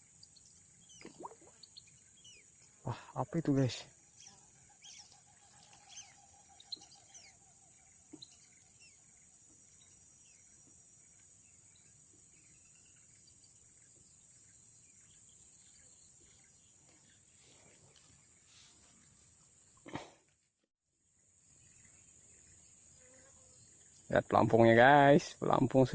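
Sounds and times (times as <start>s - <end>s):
bird chirps: 0.0s - 19.0s.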